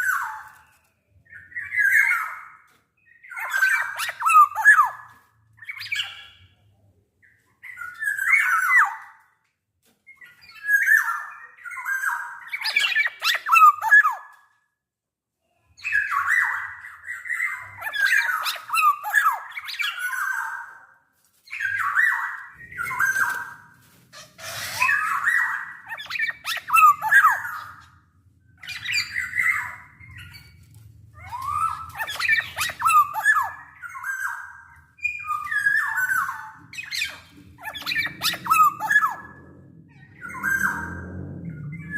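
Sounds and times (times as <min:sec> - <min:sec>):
bird singing whistled notes: 0:24.8 - 0:27.8, 0:28.6 - 0:30.6, 0:31.2 - 0:41.9.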